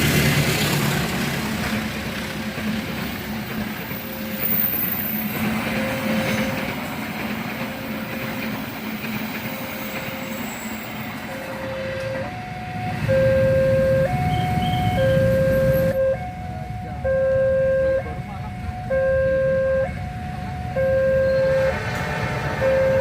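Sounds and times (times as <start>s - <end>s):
level crossing warning alarm: 3.8s - 8.5s, 9.4s - 23.0s.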